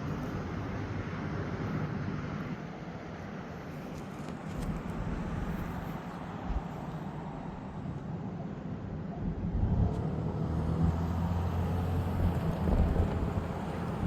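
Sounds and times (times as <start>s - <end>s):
vehicle engine rumbling: 9.2s - 14.0s.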